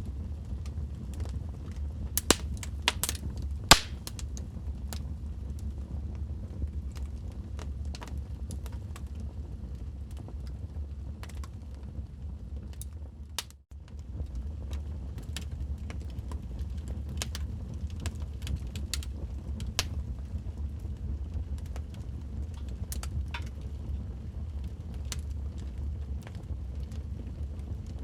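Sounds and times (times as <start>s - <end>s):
fire low rumble: 0.0s - 28.0s
wood fire crackling and popping: 1.1s - 5.0s, 11.2s - 11.7s, 14.1s - 28.0s.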